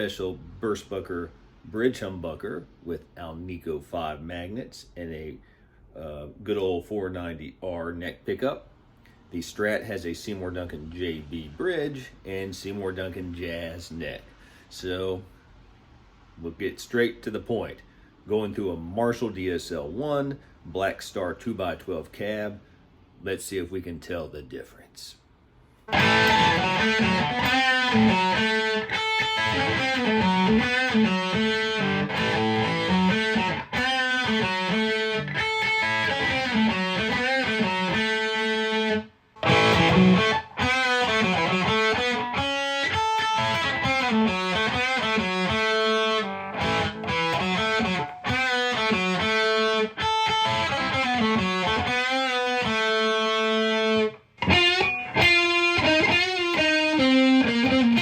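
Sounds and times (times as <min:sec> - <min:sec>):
overdriven electric guitar riff: 0:25.9 - 0:58.0.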